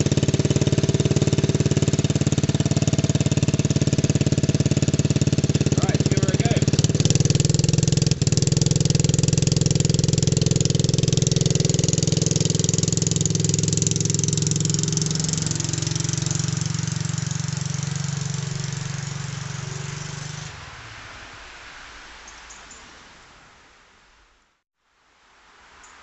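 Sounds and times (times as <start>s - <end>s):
dirt bike engine running: 0.0s - 20.5s.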